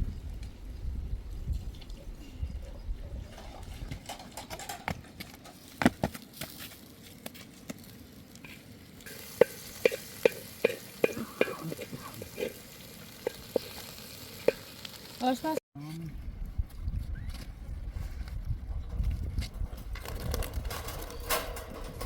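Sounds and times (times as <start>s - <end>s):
food sizzling in a pan: 8.5s - 15.6s.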